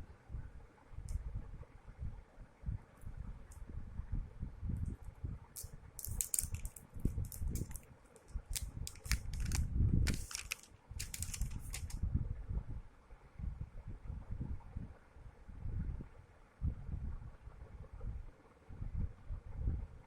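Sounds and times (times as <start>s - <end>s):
crackling and clicking: 5.6s - 12.0s.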